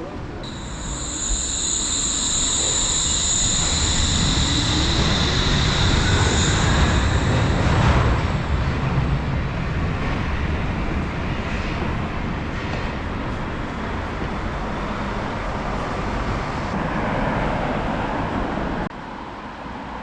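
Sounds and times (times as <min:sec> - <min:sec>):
high steady whine: 0:00.4 - 0:10.6
suspended train rumbling: 0:00.4 - 0:18.8.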